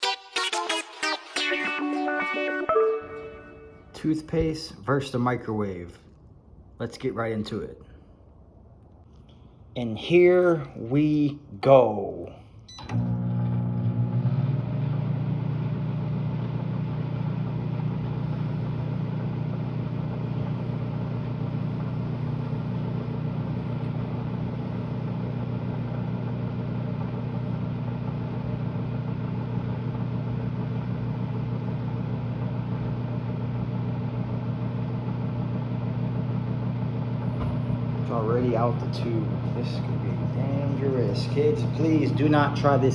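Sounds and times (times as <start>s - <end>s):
microwave oven humming: 12.5s - 42.9s.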